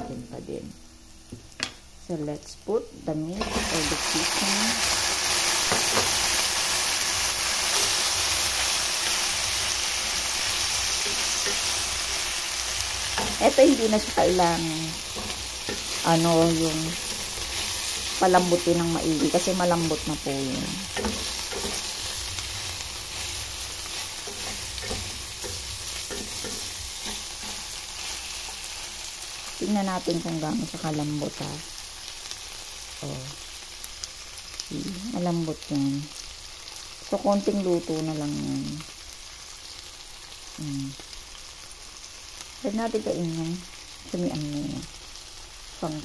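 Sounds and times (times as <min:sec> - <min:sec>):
chicken sizzling in a pan: 0:00.0 - 0:46.0
wooden spatula scraping a pan: 0:20.6 - 0:28.8.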